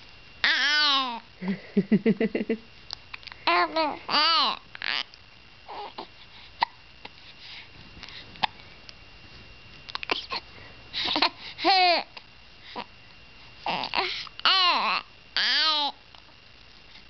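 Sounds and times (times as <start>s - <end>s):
baby cooing: 3.5s - 6.8s, 13.7s - 16.0s.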